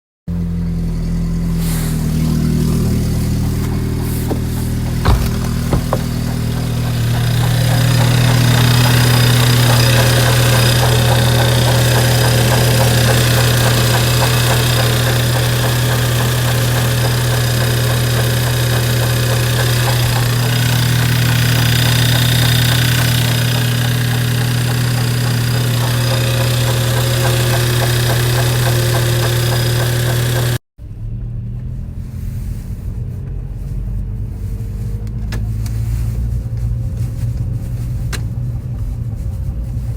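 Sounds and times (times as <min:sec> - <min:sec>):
engine knocking noise: 0:00.3 - 0:30.6
car engine running: 0:00.3 - 0:39.9.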